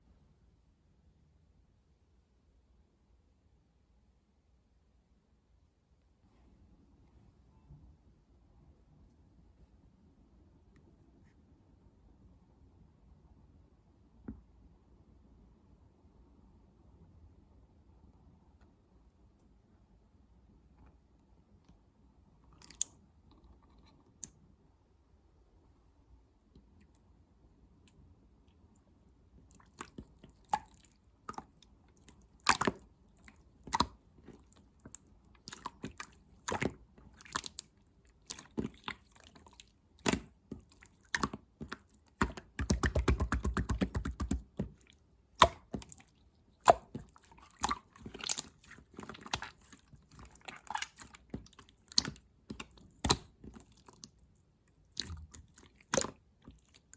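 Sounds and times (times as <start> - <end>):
slime popping by hand: 41.1 - 44.8.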